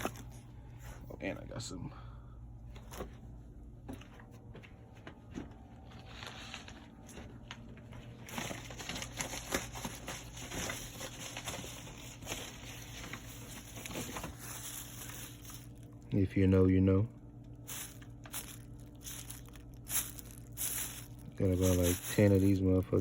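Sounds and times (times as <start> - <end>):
boxes and packaging rustling: 0.0 - 1.0, 5.2 - 16.0, 17.7 - 23.0.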